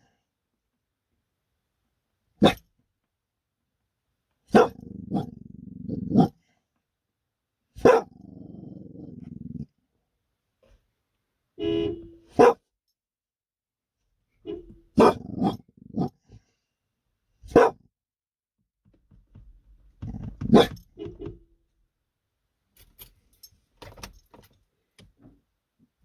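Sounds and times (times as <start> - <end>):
dog barking: 2.4 - 2.6, 4.5 - 5.4, 6.0 - 6.4, 7.8 - 8.3, 12.2 - 12.6, 14.9 - 16.2, 17.4 - 17.9, 20.4 - 20.8
dog growling: 4.6 - 6.3, 7.9 - 9.7, 15.0 - 16.2.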